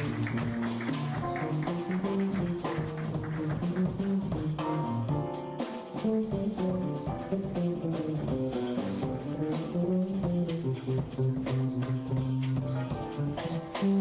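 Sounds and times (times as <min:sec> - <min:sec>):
bass line: 0:00.0 - 0:14.0
drum kit: 0:00.0 - 0:14.0
jazz quartet playing: 0:00.0 - 0:14.0.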